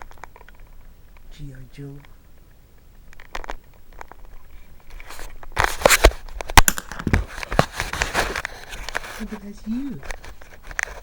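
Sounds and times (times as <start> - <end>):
plastic clicks: 3.1 - 9.1
plastic crinkling and clattering: 3.1 - 9.4.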